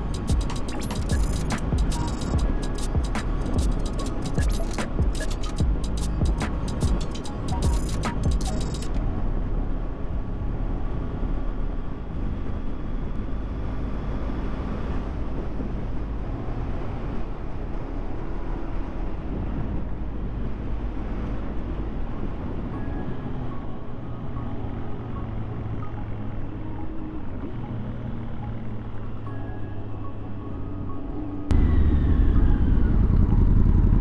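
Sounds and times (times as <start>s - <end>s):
motorcycle engine running: 31.5s - 34.0s.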